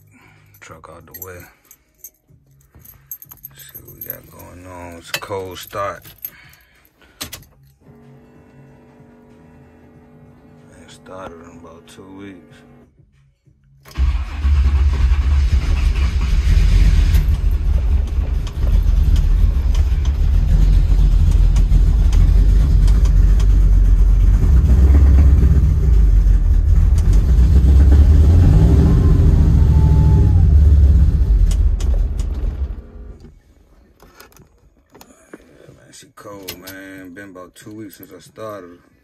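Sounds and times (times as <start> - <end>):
car engine starting and idling: 13.8 - 33.5
engine stalling: 13.9 - 33.2.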